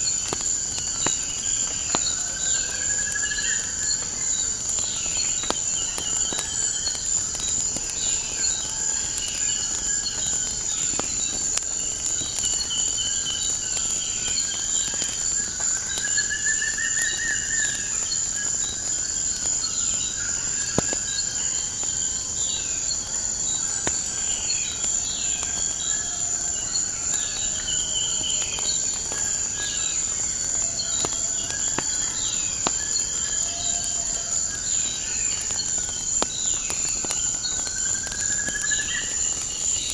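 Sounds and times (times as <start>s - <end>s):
crickets chirping: 0.0s - 39.9s
wood fire crackling: 23.0s - 39.9s
birds chirping and warbling: 28.6s - 34.2s.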